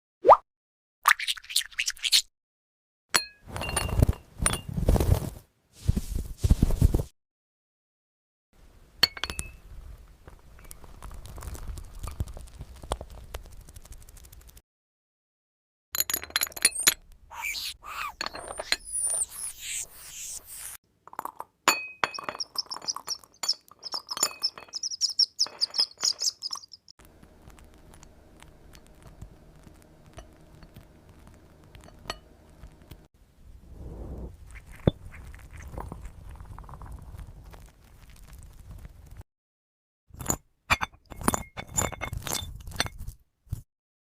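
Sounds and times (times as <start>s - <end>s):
high chirps and squeaks: 16.8s - 20.8s, 22.4s - 26.9s
fast high trill: 17.3s - 20.8s
glass clinks: 21.2s - 26.7s
low rumble: 33.4s - 34.4s.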